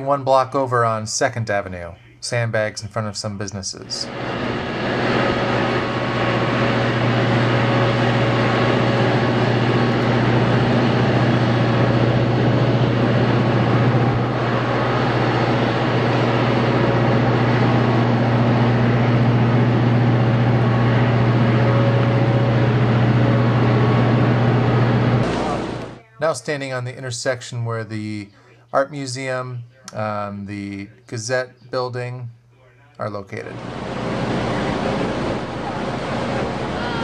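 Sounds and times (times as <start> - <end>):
large engine droning: 4.0 - 26.0, 33.5 - 37.0.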